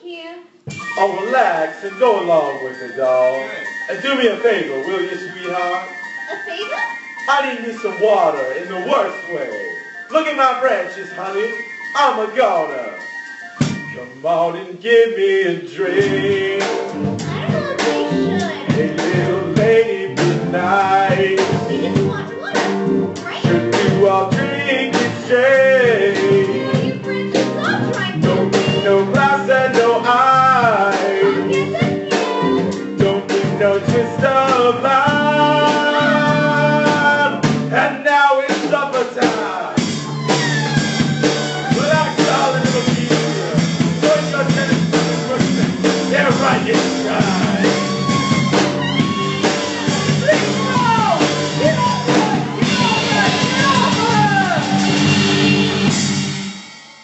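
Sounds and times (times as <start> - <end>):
rock band playing: 0.1 - 57.0
person singing: 14.0 - 39.9, 41.2 - 55.4.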